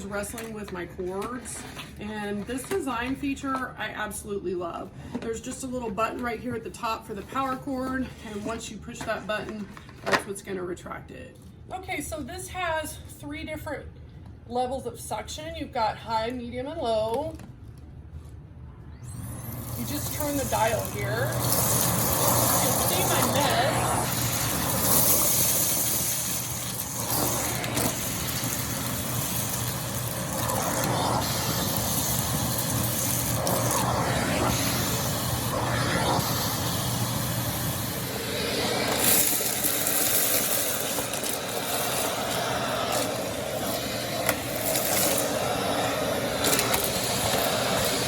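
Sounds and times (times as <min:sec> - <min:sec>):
vacuum cleaner running: 0:18.8 - 0:48.0.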